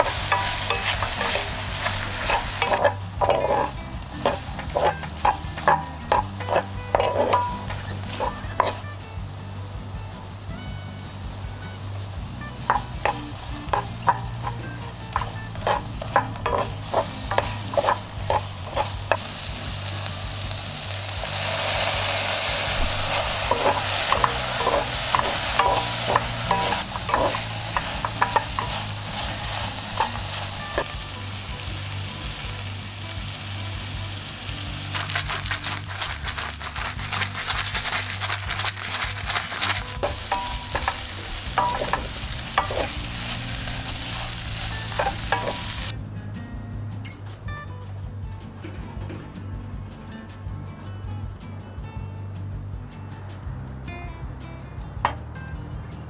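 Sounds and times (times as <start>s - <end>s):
wooden spatula scraping a pan: 0.0s - 8.9s, 12.7s - 19.3s, 21.6s - 31.0s, 35.0s - 45.9s
mushrooms sizzling in a skillet: 0.0s - 46.0s.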